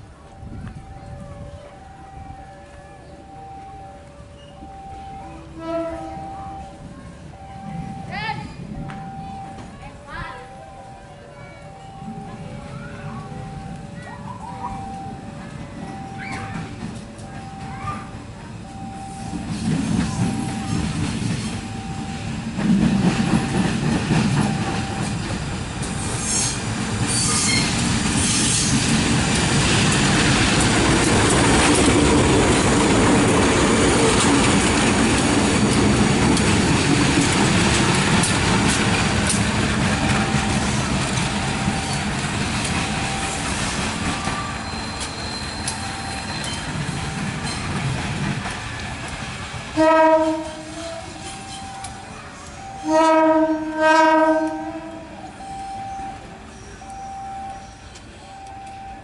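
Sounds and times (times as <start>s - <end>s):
high beeping tone: 0.4s - 25.4s, 39.8s - 47.8s, 51.2s - 52.9s, 55.3s - 59.0s
train wheels clattering: 14.8s - 52.1s.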